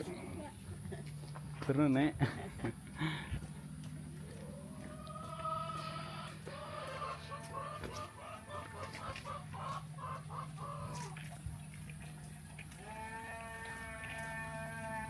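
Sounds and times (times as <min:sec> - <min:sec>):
steady low hum: 0:00.0 - 0:15.0
long farm animal call: 0:03.0 - 0:15.0
chickens clucking: 0:03.7 - 0:11.4.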